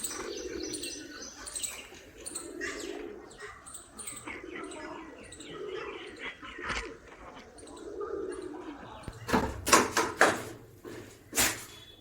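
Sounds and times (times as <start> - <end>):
low cooing: 0.0 - 9.4
small birds chirping: 0.0 - 12.0.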